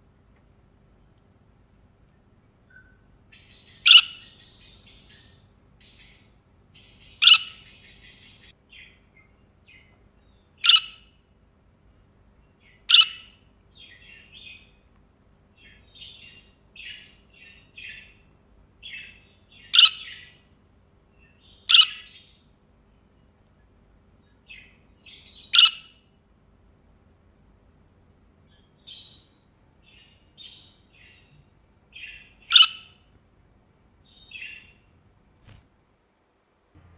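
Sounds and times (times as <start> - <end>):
budgerigar sharp chirps: 2.7 - 8.5, 12.9 - 13.3, 18.9 - 20.4, 21.4 - 22.4, 25.0 - 26.0, 32.0 - 33.0
budgerigar chattering warble: 3.4 - 8.5, 32.5 - 33.0.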